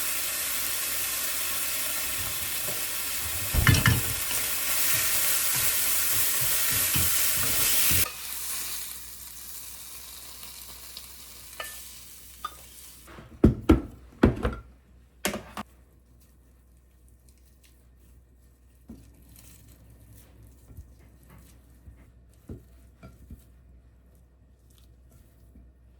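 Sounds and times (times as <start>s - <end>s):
food sizzling in a pan: 0.0s - 13.1s
utensils and dishes clinking: 3.3s - 5.0s.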